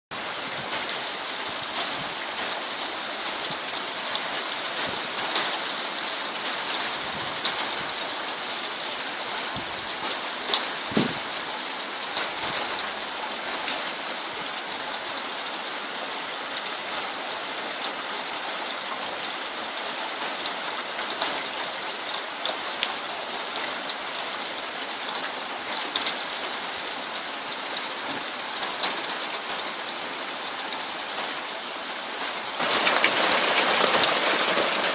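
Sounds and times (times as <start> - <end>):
steady rain falling: 0.1 - 34.9
raindrops ticking close by: 1.7 - 8.1, 32.2 - 34.9.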